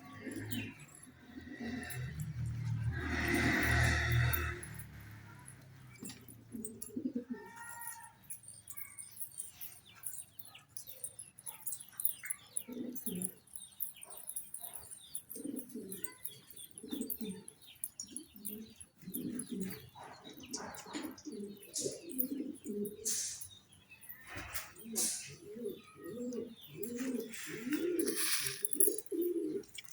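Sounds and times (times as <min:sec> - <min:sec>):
pigeons cooing: 0:00.0 - 0:05.1, 0:06.0 - 0:08.4, 0:09.0 - 0:29.9.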